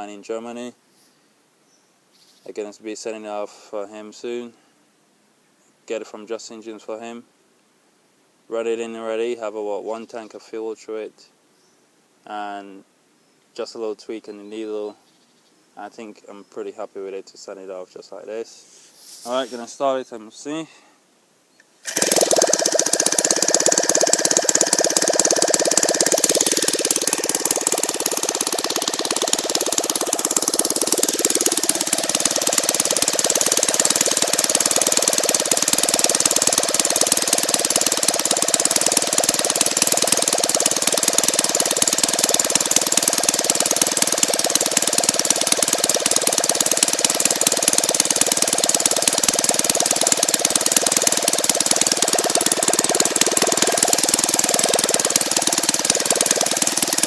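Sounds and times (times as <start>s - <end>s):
model aircraft engine running: 21.8s - 57.0s.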